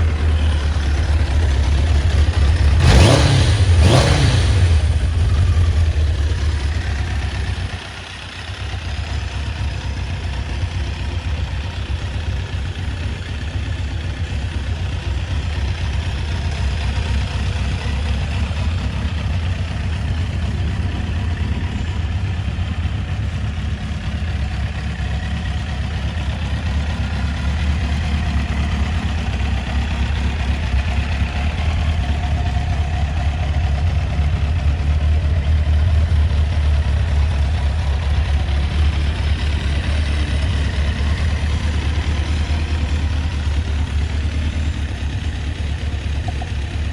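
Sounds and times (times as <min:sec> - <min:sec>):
motorcycle engine idling: 0:00.0 - 0:46.9.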